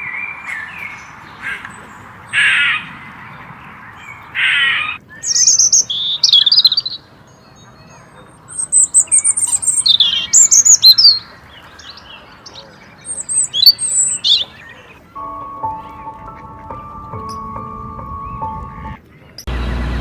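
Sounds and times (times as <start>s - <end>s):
songbird chirping: 0.0s - 20.0s.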